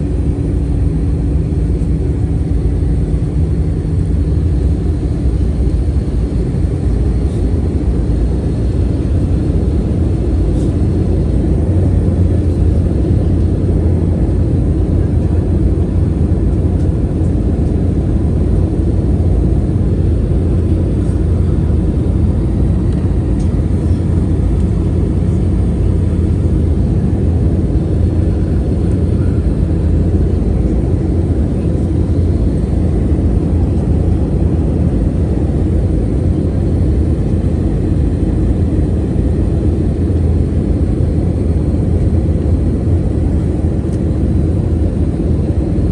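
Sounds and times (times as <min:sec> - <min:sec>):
jet engines rumbling: 0:00.0 - 0:45.9.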